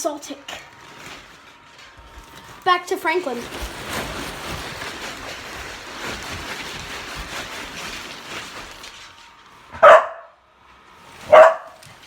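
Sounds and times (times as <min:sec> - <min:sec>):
dog barking: 0:09.8 - 0:10.4, 0:11.2 - 0:11.8.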